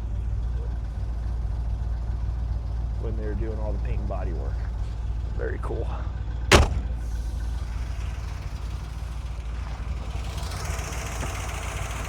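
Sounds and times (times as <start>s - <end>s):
car engine idling: 0.0s - 12.0s
sharp knock: 6.5s - 7.0s.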